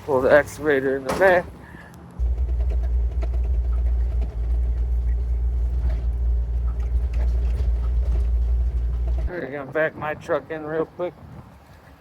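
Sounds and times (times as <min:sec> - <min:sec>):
diesel engine droning: 0:00.0 - 0:09.6.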